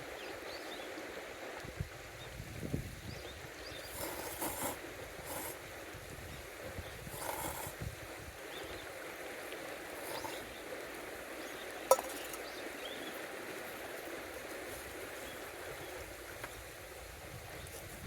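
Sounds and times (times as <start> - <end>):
metallic clink of cookware: 11.9 - 12.5.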